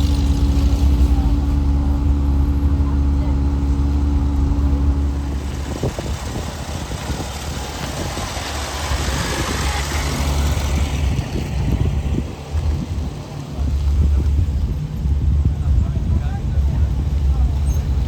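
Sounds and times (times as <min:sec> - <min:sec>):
car rushing past: 0:00.0 - 0:14.7
car engines at low revs: 0:00.0 - 0:18.0.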